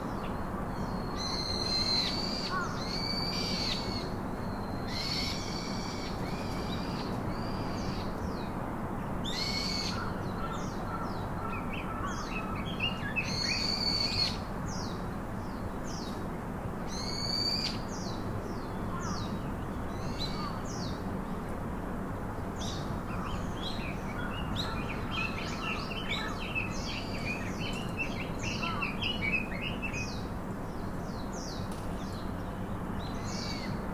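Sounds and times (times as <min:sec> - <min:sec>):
steady background hiss: 0:00.0 - 0:33.9
birds calling and singing: 0:09.2 - 0:16.3, 0:16.9 - 0:21.1, 0:22.6 - 0:33.9.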